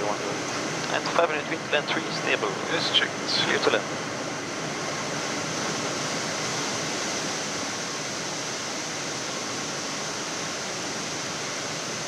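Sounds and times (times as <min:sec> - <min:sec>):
faint steady hum: 0:00.0 - 0:07.1.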